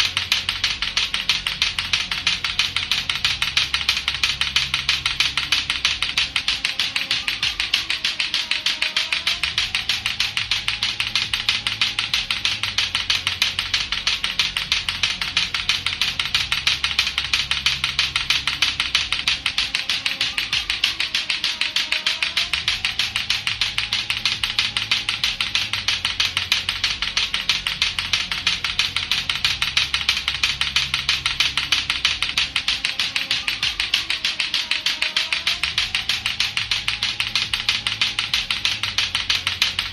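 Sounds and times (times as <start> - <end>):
clacker toy balls clacking: 0.0 - 39.9
music with repeating bass line: 0.0 - 39.9.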